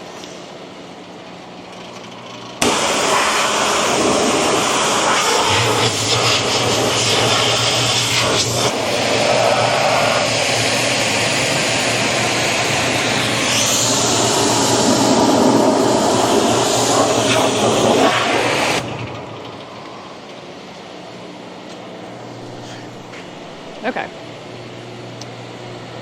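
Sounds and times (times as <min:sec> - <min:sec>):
pressure washer spraying: 0:02.6 - 0:18.8.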